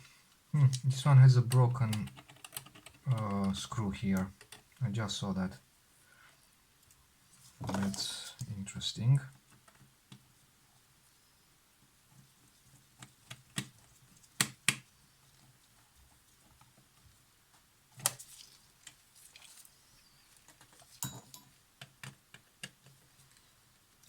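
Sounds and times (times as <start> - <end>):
tools clicking and tapping: 20.5 - 23.0.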